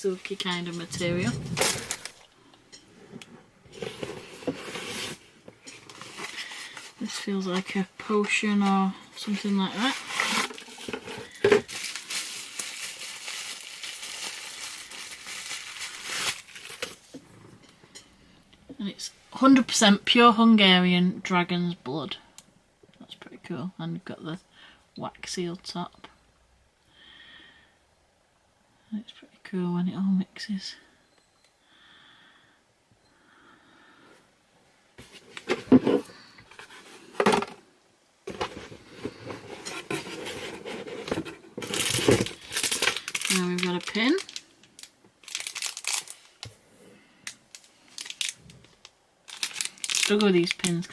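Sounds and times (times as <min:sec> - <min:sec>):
packaging rustling and crinkling: 0:00.0 - 0:02.3, 0:03.7 - 0:17.2, 0:38.3 - 0:50.9
items knocking on hard surface: 0:10.8 - 0:11.7.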